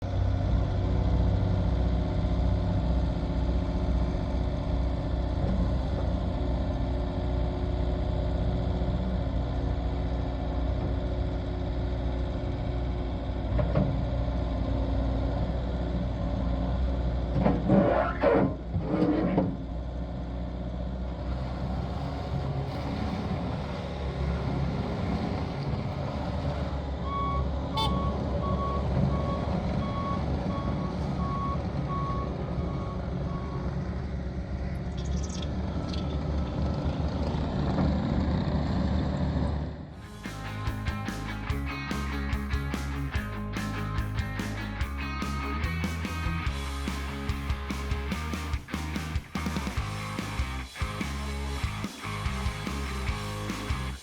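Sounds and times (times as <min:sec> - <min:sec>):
diesel loader engine running: 0:00.0 - 0:54.0
reversing alarm beeping: 0:27.0 - 0:33.7.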